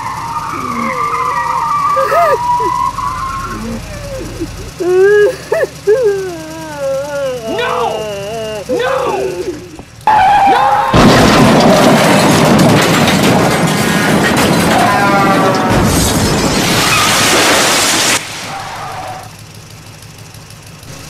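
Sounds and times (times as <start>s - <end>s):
explosion roar: 10.0s - 18.8s.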